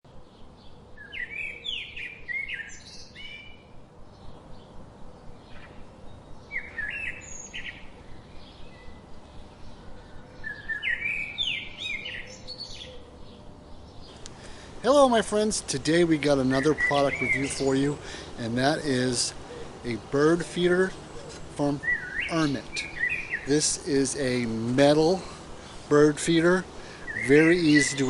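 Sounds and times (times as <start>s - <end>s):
songbird chirping: 0.1s - 28.0s.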